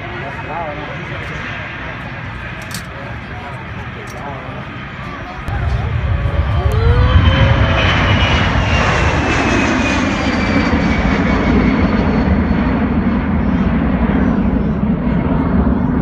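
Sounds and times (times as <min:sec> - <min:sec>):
airplane flying past: 0:00.0 - 0:16.0
engine whine falling in pitch: 0:05.5 - 0:12.2.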